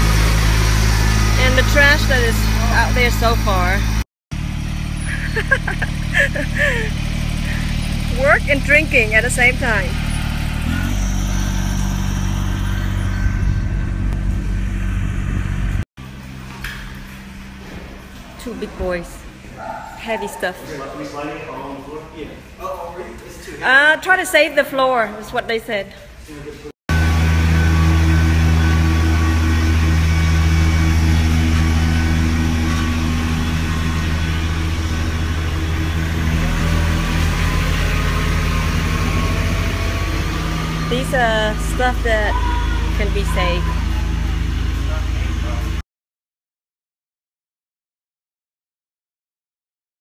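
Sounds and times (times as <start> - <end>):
engine humming: 0.0 - 22.6, 26.9 - 45.8.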